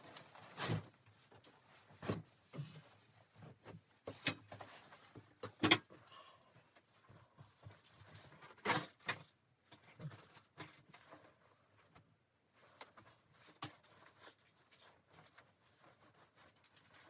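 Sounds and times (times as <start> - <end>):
objects knocking and clattering: 4.1 - 6.1.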